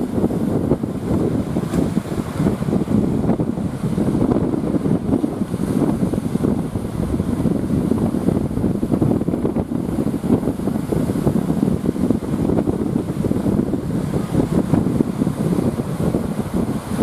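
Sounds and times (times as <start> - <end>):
surf rushing: 0.0 - 17.0
wind buffeting microphone: 0.0 - 17.0.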